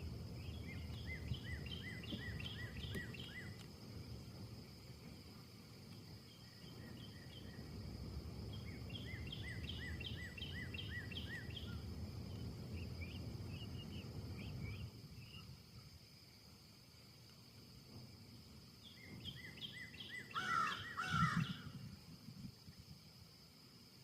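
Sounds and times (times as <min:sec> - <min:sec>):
songbird chirping: 0:00.0 - 0:03.7, 0:05.9 - 0:16.0, 0:18.7 - 0:21.8
wind gusting in trees: 0:00.0 - 0:24.0.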